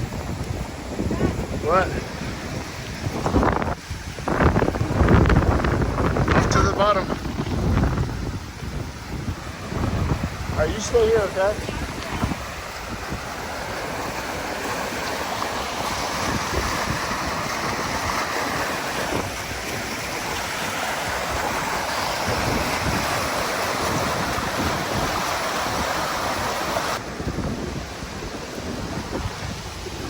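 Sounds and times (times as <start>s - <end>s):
creek rushing over rocks: 0.0s - 30.0s
wind buffeting microphone: 0.0s - 30.0s.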